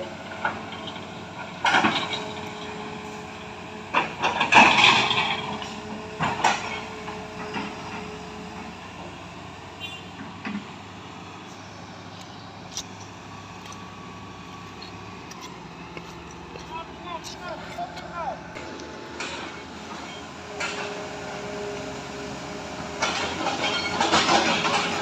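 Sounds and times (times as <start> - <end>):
heavy machinery diesel engine: 0.0 - 25.0
loud knocks and clatter: 23.0 - 25.0.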